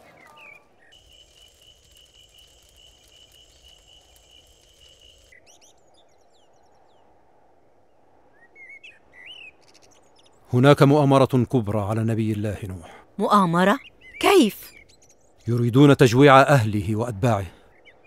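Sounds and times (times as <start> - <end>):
birds chirping: 0.0 - 18.0
cricket trilling: 0.9 - 5.3.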